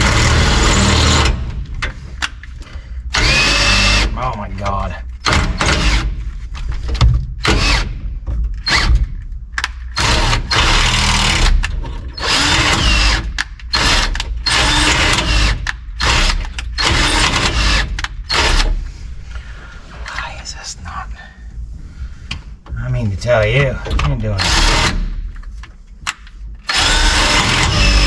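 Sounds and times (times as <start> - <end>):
power drill boring plastic: 3.1 - 4.1, 12.2 - 18.7, 24.4 - 25.0, 26.7 - 28.0.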